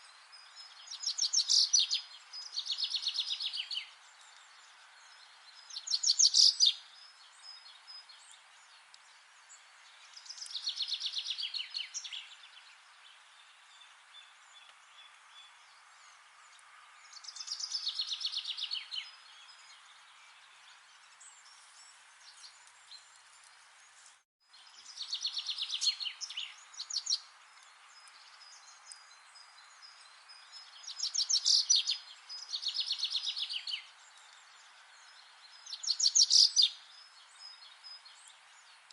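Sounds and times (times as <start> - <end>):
faint background hiss: 0.0 - 38.9
songbird trilling: 5.8 - 6.8.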